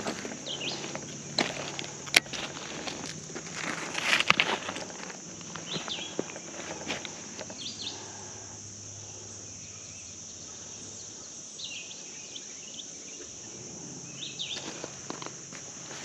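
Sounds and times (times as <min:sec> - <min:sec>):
faint footsteps: 0:00.0 - 0:08.1, 0:14.5 - 0:16.0
high insect drone: 0:00.0 - 0:16.0
bird chirps: 0:00.4 - 0:00.9.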